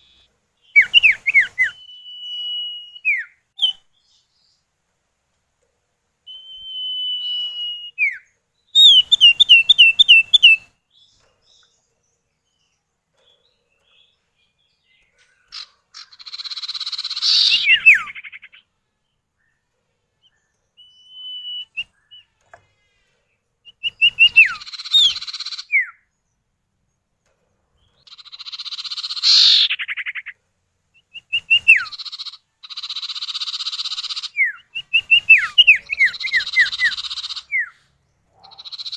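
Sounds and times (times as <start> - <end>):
bird whistled calls: 0.0 - 3.9, 6.3 - 10.7, 15.5 - 18.6, 20.8 - 22.3, 23.7 - 26.0, 31.0 - 37.8
bird harsh buzzy chattering: 38.4 - 38.9.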